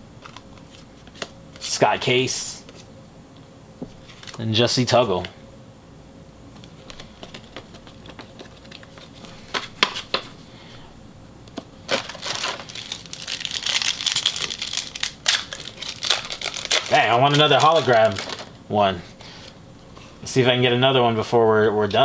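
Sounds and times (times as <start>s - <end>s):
wrapper crinkling: 11.9s - 18.6s.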